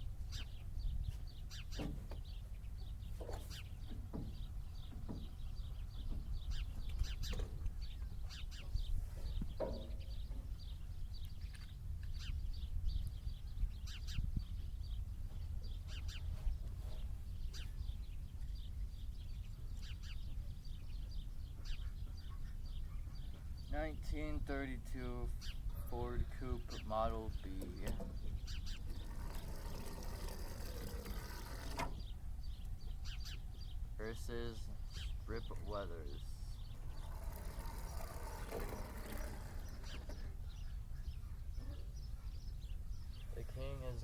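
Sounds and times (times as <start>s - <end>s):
wind rumble on microphone: 0.0s - 24.6s
birds chirping: 0.0s - 44.0s.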